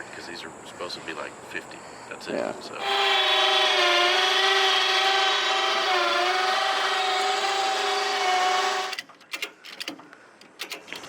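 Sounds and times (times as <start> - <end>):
small motor whining: 2.8 - 9.0
sharp clicks: 8.8 - 11.0.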